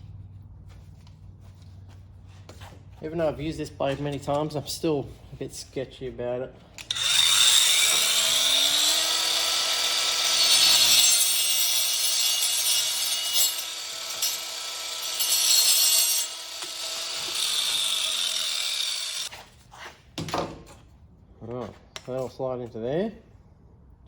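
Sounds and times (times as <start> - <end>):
angle grinder motor whine: 6.8 - 19.3
grinder cutting through tube: 6.8 - 19.3.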